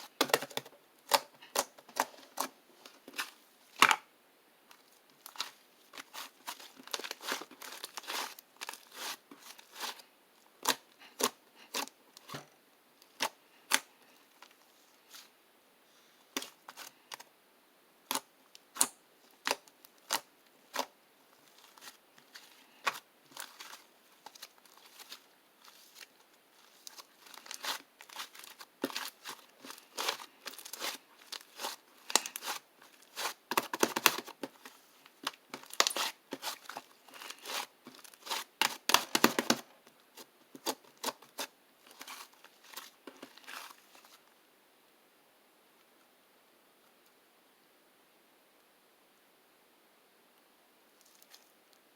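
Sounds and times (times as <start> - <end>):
crinkling rustle: 4.7 - 10.1, 19.3 - 44.3, 51.0 - 51.6.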